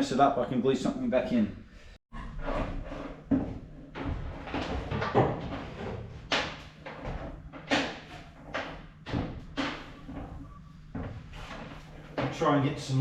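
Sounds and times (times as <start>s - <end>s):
knocks and thuds of handled objects: 3.2s - 12.4s.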